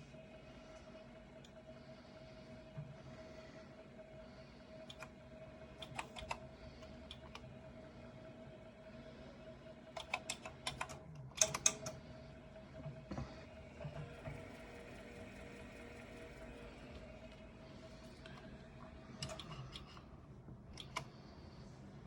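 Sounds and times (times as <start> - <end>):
computer keyboard key presses: 10.0 - 11.9.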